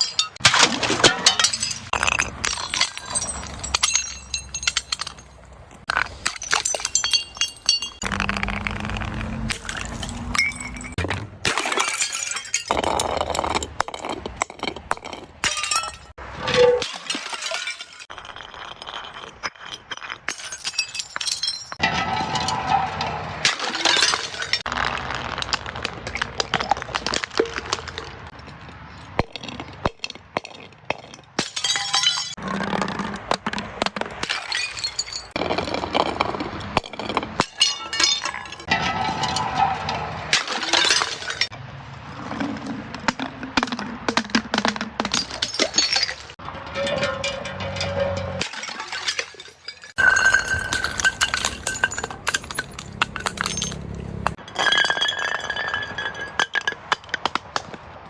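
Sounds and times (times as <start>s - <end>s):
glass being crushed: 0.0s - 28.1s, 29.2s - 32.8s, 33.8s - 41.5s, 44.1s - 57.6s.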